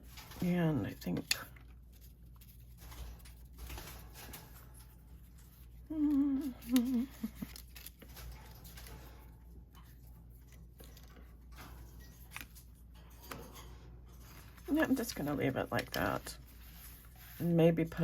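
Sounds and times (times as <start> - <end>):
paper rustling: 0.0 - 18.0
woman humming: 5.8 - 7.5.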